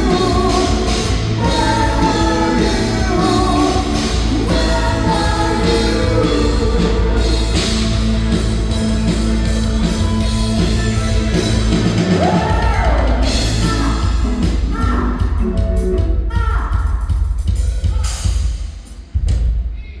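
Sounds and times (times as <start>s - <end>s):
person singing: 0.0s - 8.0s, 12.1s - 15.5s
live rock band playing: 0.0s - 19.9s
drum kit: 0.0s - 20.0s.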